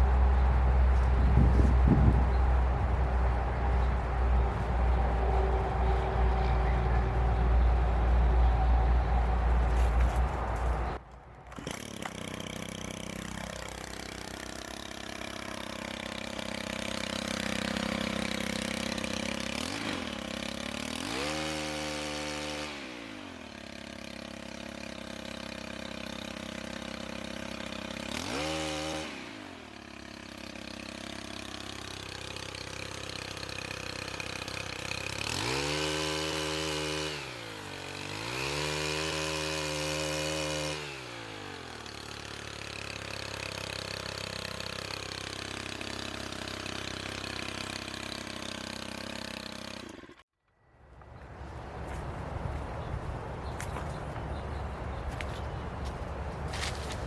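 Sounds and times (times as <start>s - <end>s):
pole chainsaw revving: 10.8s - 50.2s.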